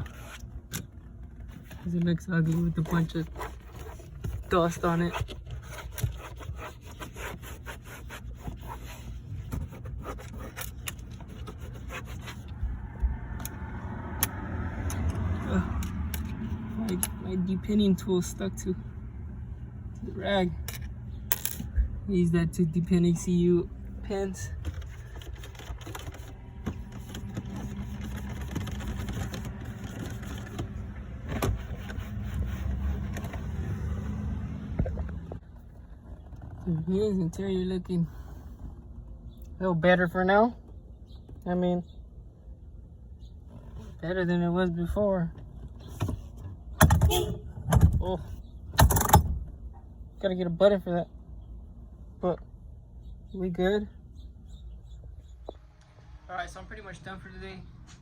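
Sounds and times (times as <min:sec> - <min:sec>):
low mechanical hum: 0:00.0 - 0:58.0
cloth rag rubbing car trim: 0:02.5 - 0:12.6, 0:25.3 - 0:34.2.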